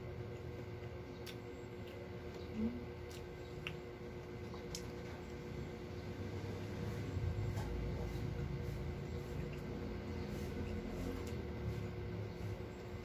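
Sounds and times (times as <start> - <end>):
steady low hum: 0.0 - 13.0
person chewing food: 0.4 - 5.5, 6.9 - 12.8.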